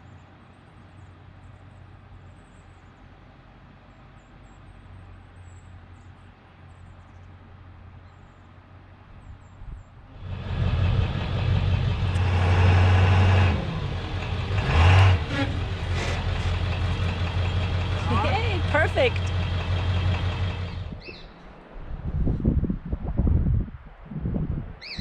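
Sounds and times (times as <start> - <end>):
truck engine drone: 10.1 - 21.8.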